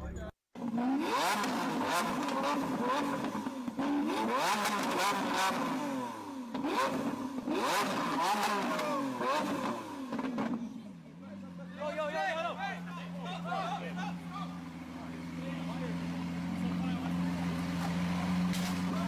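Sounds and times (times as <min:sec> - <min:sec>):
car engine revving hard: 0:00.6 - 0:10.6
exhaust pops and bangs: 0:18.4 - 0:19.0.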